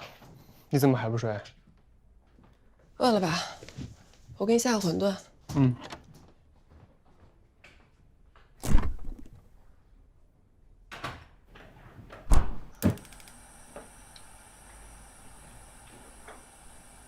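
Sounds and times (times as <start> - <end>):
steady hiss: 12.9 - 17.0.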